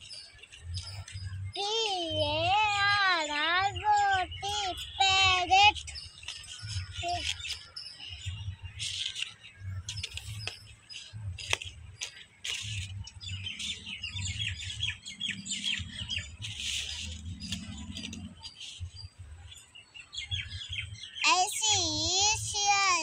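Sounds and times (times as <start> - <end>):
small birds chirping: 0.0 - 23.0
paper plates rustling: 4.5 - 7.7, 8.8 - 13.9, 15.6 - 18.8.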